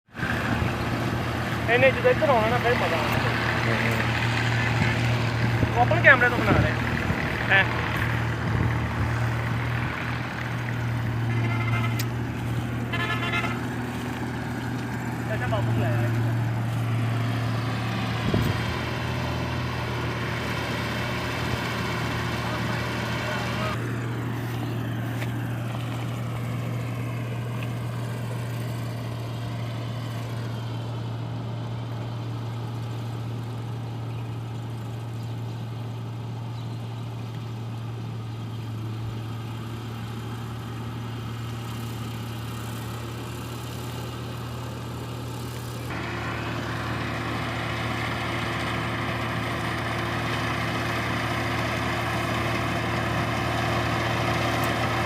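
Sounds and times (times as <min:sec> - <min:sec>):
combine harvester engine humming: 0:00.1 - 0:55.0.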